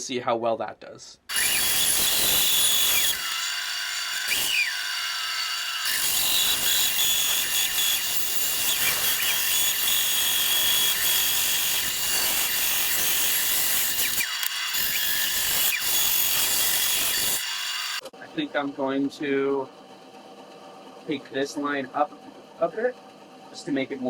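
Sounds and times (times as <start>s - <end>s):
bandsaw cutting wood: 1.3s - 18.0s.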